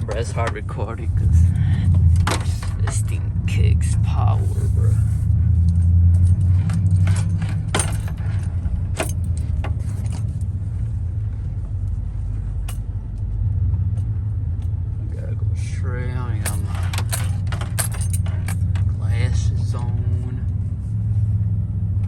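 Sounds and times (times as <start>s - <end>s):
truck engine rumble: 0.0s - 22.0s
light clicks and rattles: 5.6s - 10.6s, 16.3s - 19.1s.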